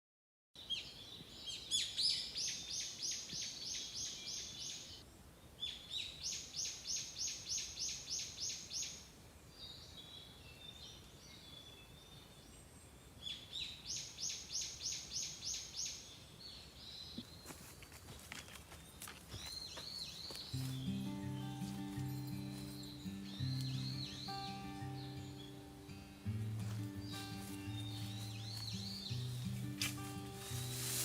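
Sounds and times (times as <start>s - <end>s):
faint bird chirps: 18.9s - 31.0s
songbird singing repeated high notes: 19.5s - 31.0s.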